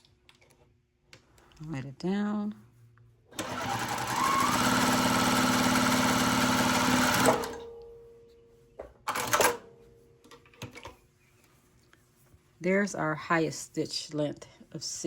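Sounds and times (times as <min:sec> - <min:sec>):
sewing machine running: 0:03.4 - 0:07.6.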